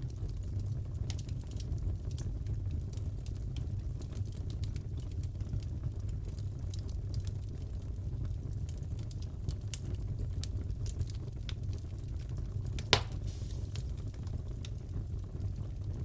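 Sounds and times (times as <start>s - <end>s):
fire low rumble: 0.0s - 16.0s
wood fire crackling: 0.0s - 16.0s
loud fire pop: 12.8s - 14.1s.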